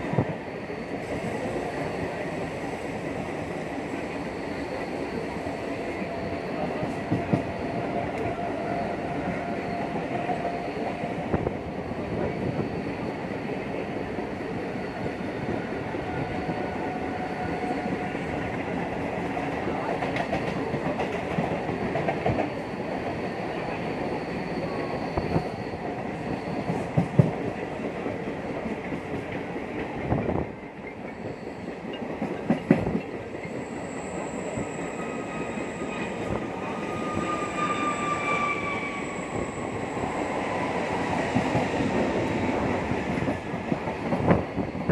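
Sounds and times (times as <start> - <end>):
train wheels rumbling on rail: 0.0 - 44.9.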